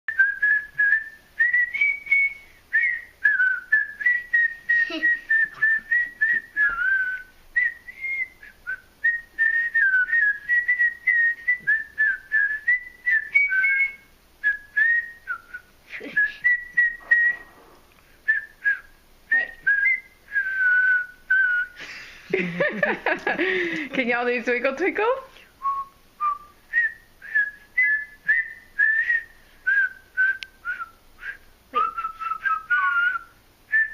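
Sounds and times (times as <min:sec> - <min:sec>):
people whistling chirpy phrases: 0:09.4 - 0:17.6, 0:18.3 - 0:21.8, 0:25.6 - 0:33.9.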